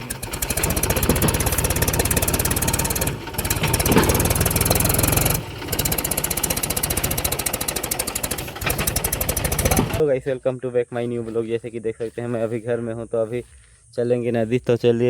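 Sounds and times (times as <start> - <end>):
diesel tractor engine running: 0.0 - 10.0.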